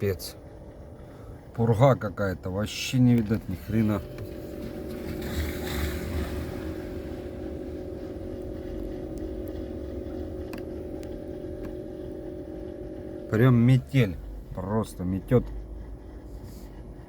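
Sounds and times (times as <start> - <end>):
engine hum: 0.0 - 17.0.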